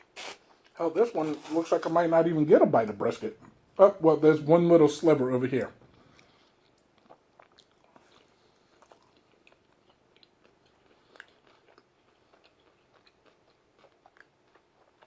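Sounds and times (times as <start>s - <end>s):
man chewing food: 0.0s - 1.6s, 5.8s - 15.0s.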